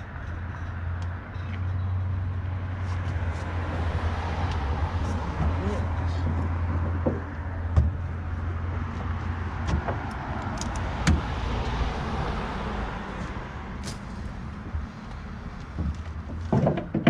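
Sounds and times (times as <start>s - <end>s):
vehicle engine idling: 4.6s - 16.6s
knocks and clunks in pickup bed: 6.3s - 8.3s, 9.6s - 10.1s, 15.6s - 17.0s.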